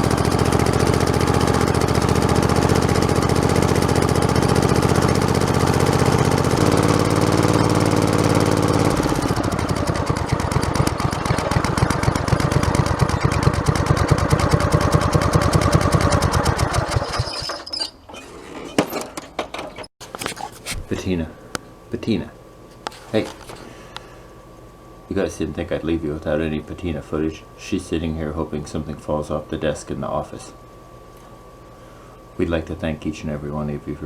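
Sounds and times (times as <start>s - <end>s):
lawn tractor engine running: 0.0s - 17.6s.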